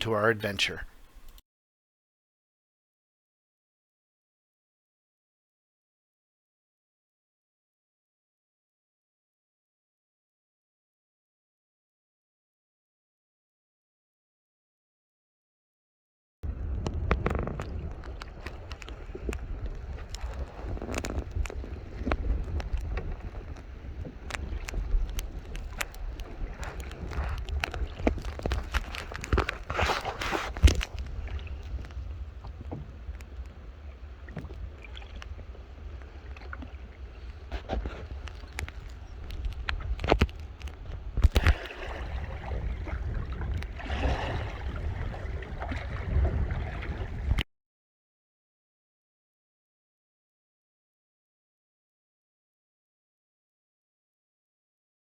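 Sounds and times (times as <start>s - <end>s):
wind rumbling on microphone: 16.4s - 47.4s
water lapping around canoe: 16.5s - 47.4s.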